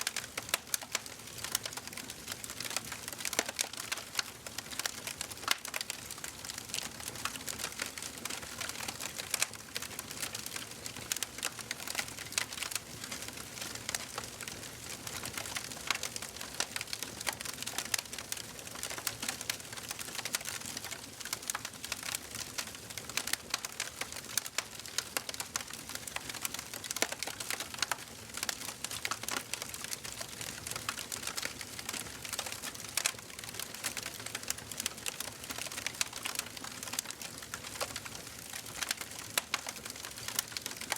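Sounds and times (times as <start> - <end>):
wood fire crackling and popping: 0.0 - 40.9.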